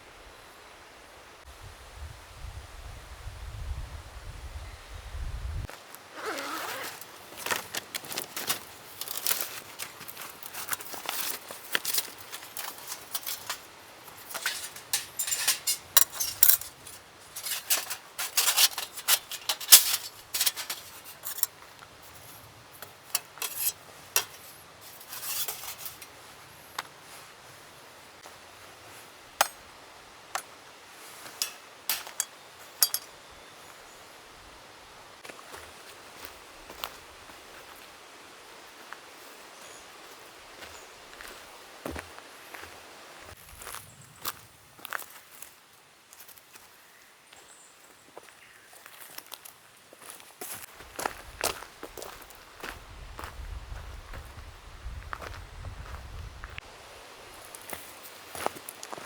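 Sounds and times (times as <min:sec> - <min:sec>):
camping gear clinking and rattling: 0:05.8 - 0:26.3, 0:29.3 - 0:33.3.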